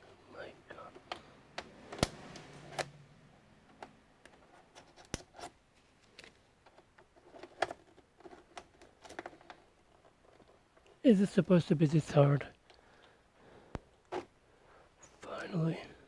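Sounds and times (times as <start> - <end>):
plastic snapping: 1.0 - 3.0
plastic parts clicking and scraping: 3.6 - 11.0.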